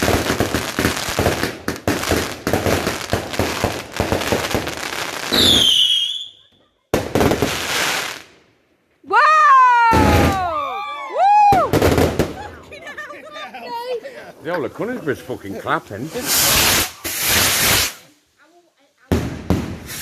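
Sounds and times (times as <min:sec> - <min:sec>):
fireworks bangs and crackles: 0:00.0 - 0:08.4, 0:09.8 - 0:10.6, 0:11.4 - 0:13.0, 0:14.7 - 0:20.0
high falling firework whistle: 0:05.3 - 0:06.5.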